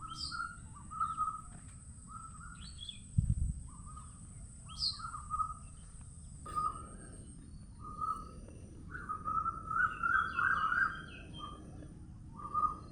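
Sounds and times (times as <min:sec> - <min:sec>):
bird whistling call phrases: 0:00.0 - 0:01.5, 0:03.7 - 0:05.8, 0:06.5 - 0:11.6, 0:12.3 - 0:12.9
bird warbling: 0:06.5 - 0:11.6.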